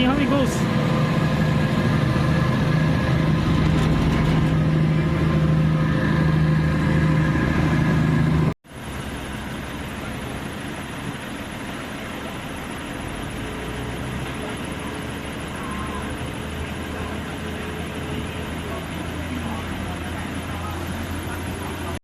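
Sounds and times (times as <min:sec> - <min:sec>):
ferry engine humming: 0:00.0 - 0:22.0
quiet steady rumble: 0:00.0 - 0:22.0.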